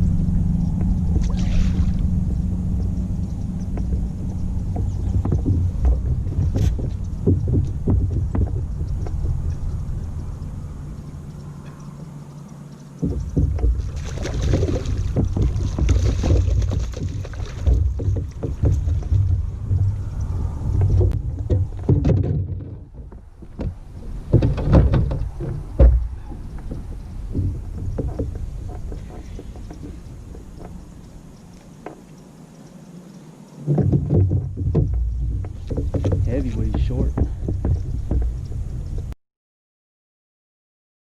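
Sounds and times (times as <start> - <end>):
water and kayak hull rumble: 0.0 - 39.2
kayak hull knocks and bumps: 3.7 - 9.6, 13.0 - 30.8, 33.6 - 39.1.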